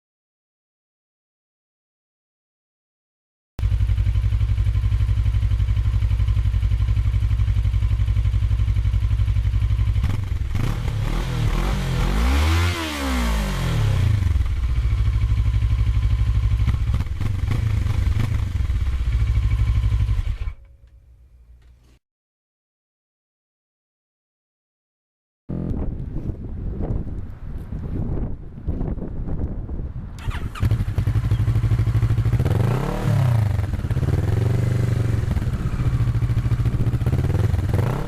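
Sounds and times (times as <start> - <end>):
motorcycle engine idling: 3.6 - 10.9, 14.1 - 21.8, 30.2 - 38.0.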